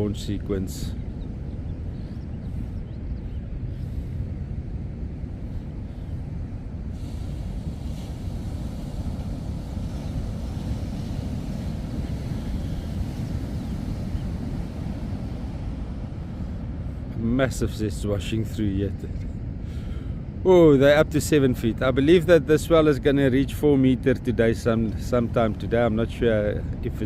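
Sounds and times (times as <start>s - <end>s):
heavy surf breaking: 3.8s - 27.0s
hiss of foaming water: 6.8s - 15.4s.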